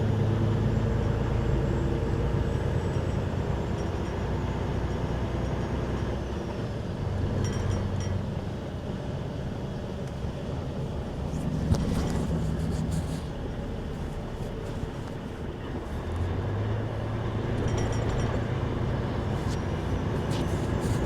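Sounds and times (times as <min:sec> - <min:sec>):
road noise: 0:00.0 - 0:21.0
truck engine hum: 0:00.0 - 0:21.0.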